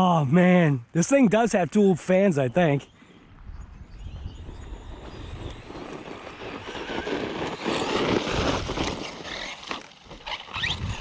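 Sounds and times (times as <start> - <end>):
rc truck motor and tyres: 3.7 - 11.0.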